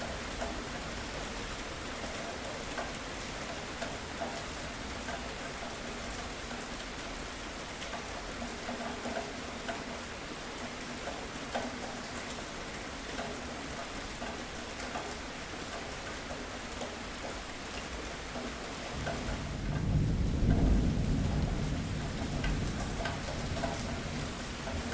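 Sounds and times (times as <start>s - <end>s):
steady rain: 0.0s - 24.9s.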